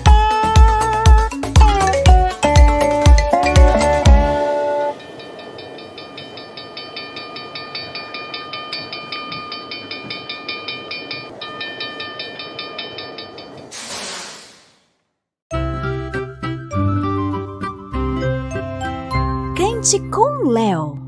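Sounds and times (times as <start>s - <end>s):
held tone: 2.6s - 14.1s
steam locomotive chugging: 3.4s - 14.0s
steam hissing: 13.7s - 14.9s.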